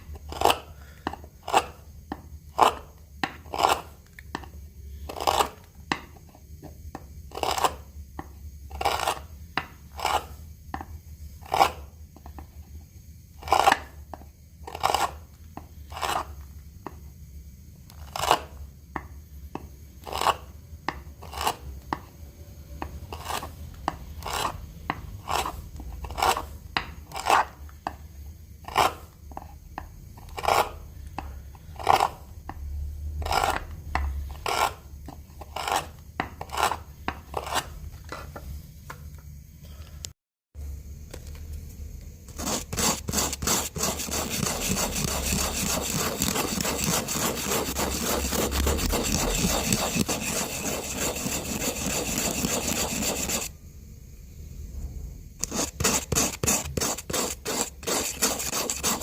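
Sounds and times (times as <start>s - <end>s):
hand tool working wood: 42.4s - 53.5s, 55.4s - 59.0s.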